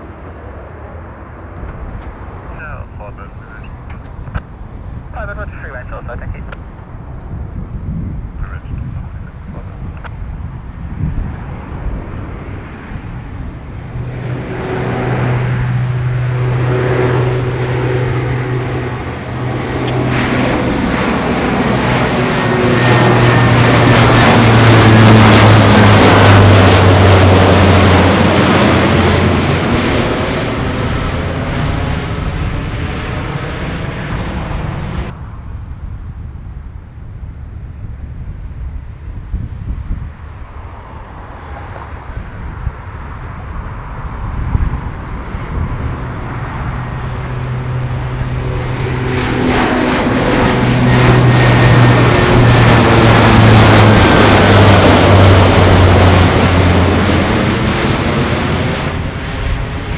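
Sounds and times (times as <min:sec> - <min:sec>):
aircraft engines passing: 0:00.0 - 0:59.9
low engine drone: 0:00.0 - 0:59.9.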